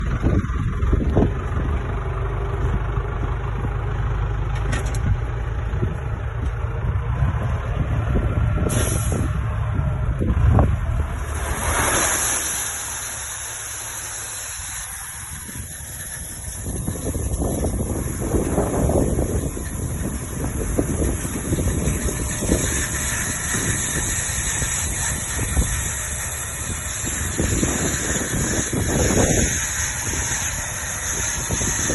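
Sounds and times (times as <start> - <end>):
diesel truck engine running: 0.0 - 31.9
air hiss: 8.7 - 9.4, 11.3 - 17.1.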